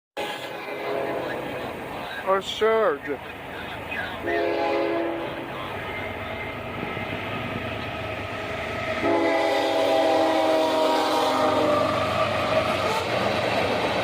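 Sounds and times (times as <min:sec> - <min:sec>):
locomotive air horn: 0:00.2 - 0:01.3, 0:04.2 - 0:05.4, 0:09.0 - 0:12.0
train rumble: 0:00.2 - 0:14.0.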